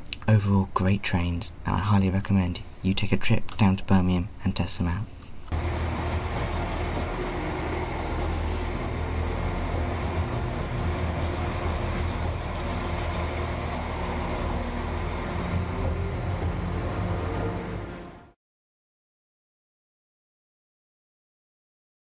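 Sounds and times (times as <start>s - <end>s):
train engine drone: 5.2s - 18.4s
train wheels on rails: 5.5s - 18.2s.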